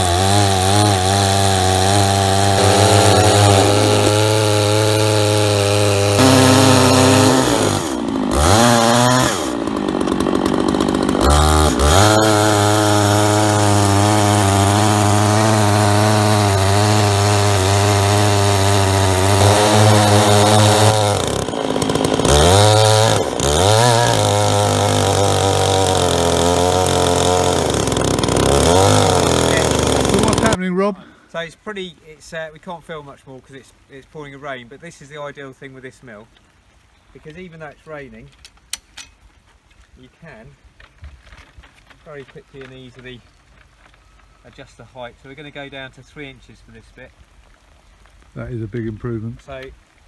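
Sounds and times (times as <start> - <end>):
chainsaw cutting log: 0.0 - 30.6.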